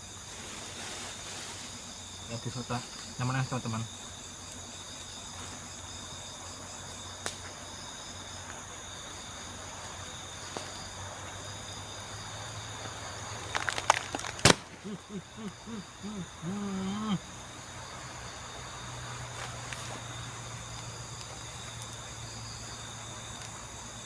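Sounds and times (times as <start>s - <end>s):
crickets and insects trilling: 0.0s - 24.0s
short low repeated calls: 14.8s - 17.3s.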